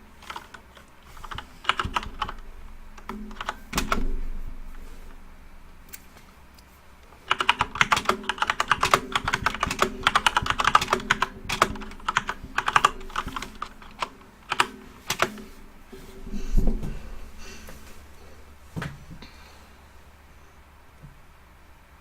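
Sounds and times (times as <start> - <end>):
keyboard key clicks: 0.2 - 2.4, 3.0 - 4.2, 7.3 - 15.6.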